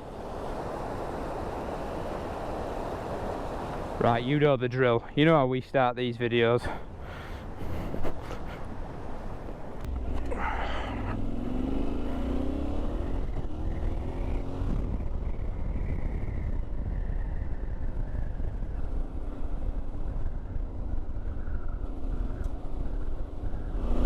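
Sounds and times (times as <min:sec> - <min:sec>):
wind noise: 0:06.6 - 0:24.0
motorcycle engine accelerating: 0:09.8 - 0:24.0.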